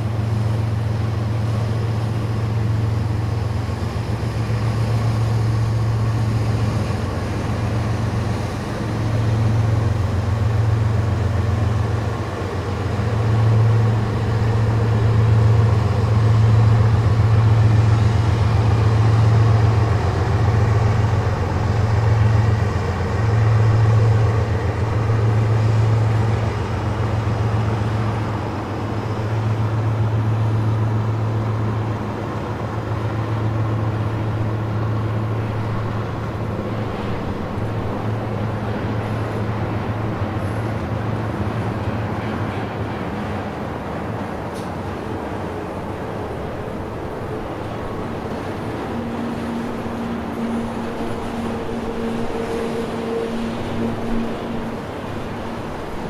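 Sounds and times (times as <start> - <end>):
diesel locomotives droning: 0.0 - 56.0.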